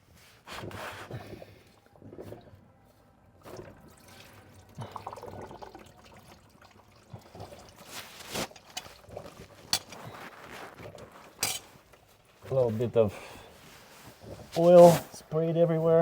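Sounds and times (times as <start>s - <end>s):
oil pouring and splashing: 3.4s - 12.4s.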